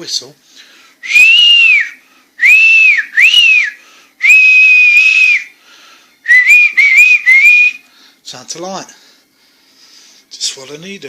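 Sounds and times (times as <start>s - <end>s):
person whistling: 1.0s - 5.5s, 6.3s - 7.9s.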